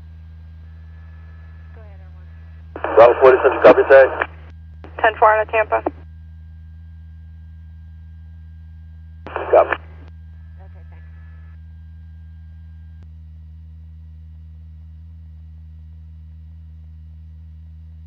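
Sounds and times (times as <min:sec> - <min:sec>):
radio electrical hum: 0:00.0 - 0:13.0
faint voice on radio: 0:01.8 - 0:04.3, 0:09.3 - 0:09.8, 0:10.6 - 0:11.2.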